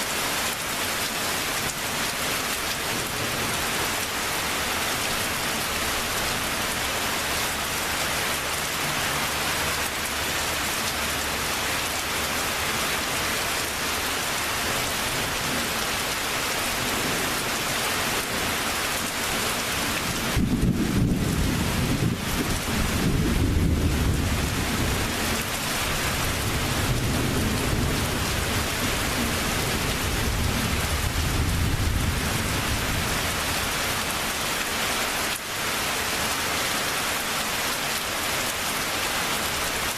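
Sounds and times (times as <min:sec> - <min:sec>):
steady rain: 0:00.0 - 0:39.9
thunder rumbling: 0:20.2 - 0:25.2, 0:25.9 - 0:33.3.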